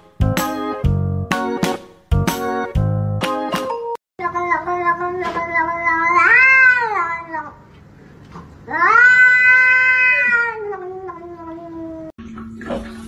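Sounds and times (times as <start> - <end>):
cat yowling: 5.8 - 7.5, 8.7 - 12.1.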